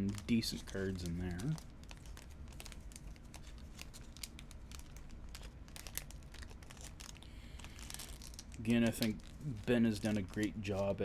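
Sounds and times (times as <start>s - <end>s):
plastic packs crinkling: 0.0s - 11.0s
small clicks and rustles of cards: 0.0s - 11.0s.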